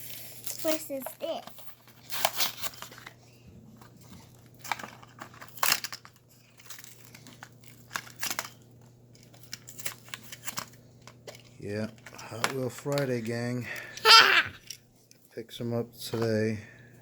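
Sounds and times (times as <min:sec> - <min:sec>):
blister packaging crinkling and tearing: 0:00.0 - 0:03.2, 0:04.3 - 0:12.1.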